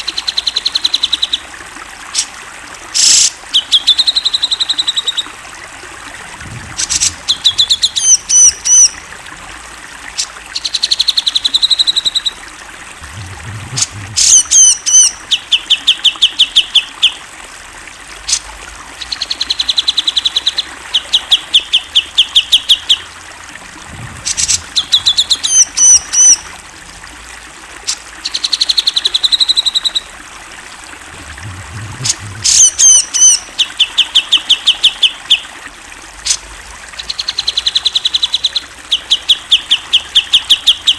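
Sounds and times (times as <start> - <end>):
bird trilling: 13.1 - 15.2, 31.4 - 33.4.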